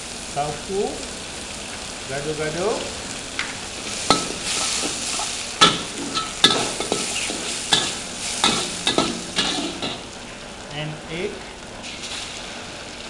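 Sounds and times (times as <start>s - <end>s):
food sizzling in hot oil: 0.0s - 13.0s
spatula clinking on wok: 4.1s - 4.9s, 5.6s - 10.1s.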